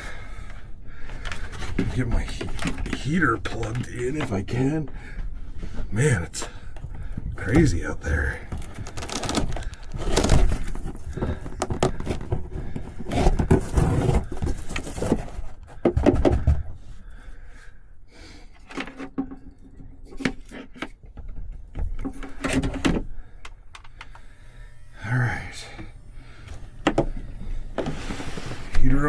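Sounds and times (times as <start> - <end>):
gear rustling and scraping: 1.1 - 15.8.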